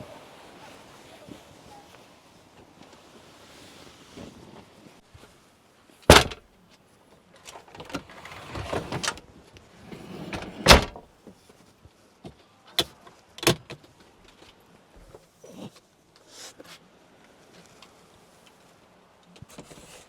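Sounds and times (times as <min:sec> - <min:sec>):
door slamming shut: 0:06.1 - 0:06.4, 0:10.0 - 0:11.0
rustling and scraping: 0:07.5 - 0:11.7, 0:19.5 - 0:20.0.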